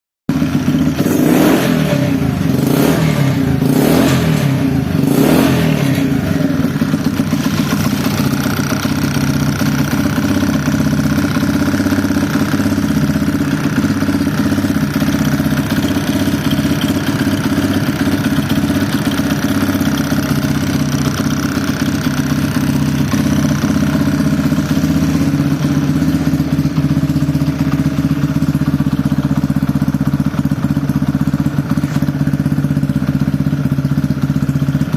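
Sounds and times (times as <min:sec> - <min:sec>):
motorcycle engine revving and idling: 0:00.3 - 0:34.9.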